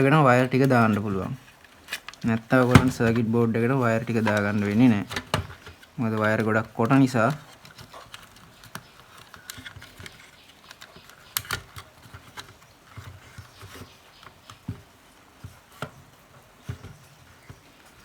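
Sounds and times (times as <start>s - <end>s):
light clicks and taps of handling parts: 4.1s - 18.0s.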